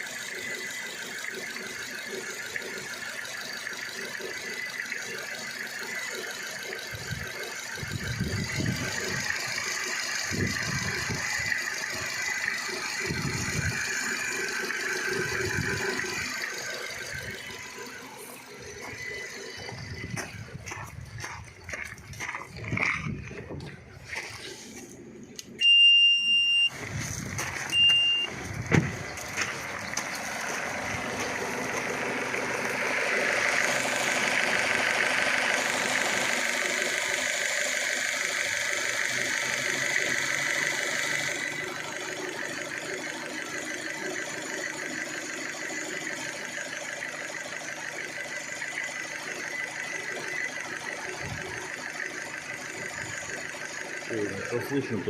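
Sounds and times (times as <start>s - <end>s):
petrol engine idling: 0.0s - 55.0s
short high electronic beeps: 25.6s - 26.8s, 27.7s - 28.4s.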